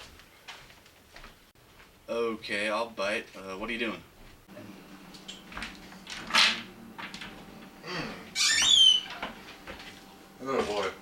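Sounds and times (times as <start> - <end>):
high squeak sliding down: 8.4 - 9.2.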